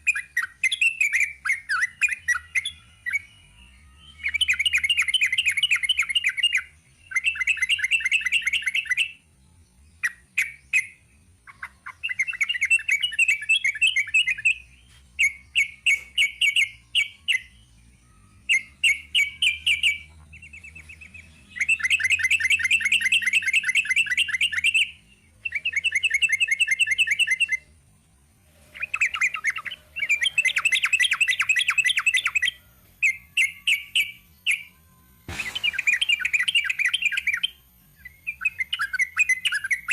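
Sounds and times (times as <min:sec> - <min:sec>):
bulbul singing trilled song: 0:00.0 - 0:27.8, 0:28.5 - 0:39.9.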